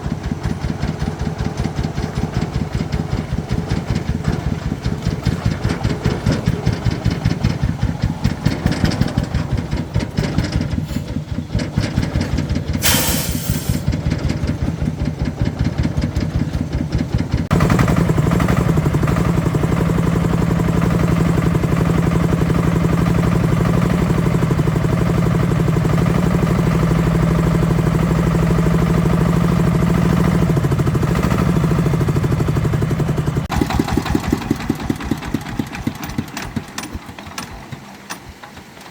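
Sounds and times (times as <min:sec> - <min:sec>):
tractor engine chugging: 0:00.0 - 0:38.9
short hiss: 0:10.8 - 0:11.2, 0:12.8 - 0:13.9.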